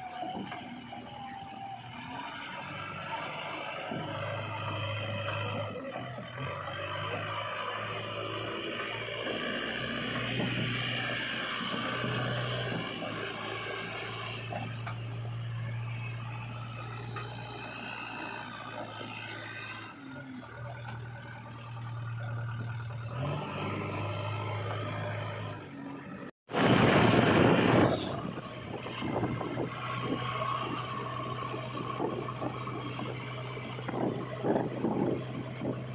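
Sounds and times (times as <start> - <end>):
heavy vehicle engine humming: 0.0 - 35.9
loud rushing noise: 26.5 - 28.4.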